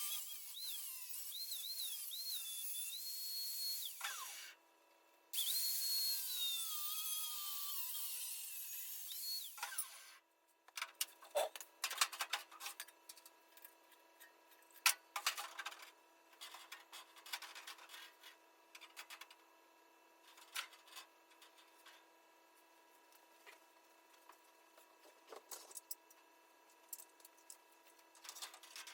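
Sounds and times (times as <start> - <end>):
power tool spinning down: 0.0 - 4.6, 5.4 - 10.2
tools and metal parts clicking: 28.2 - 28.9.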